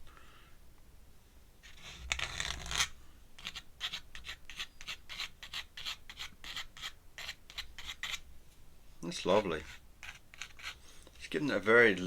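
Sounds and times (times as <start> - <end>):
pen scratching on paper: 1.6 - 8.2, 9.3 - 10.8.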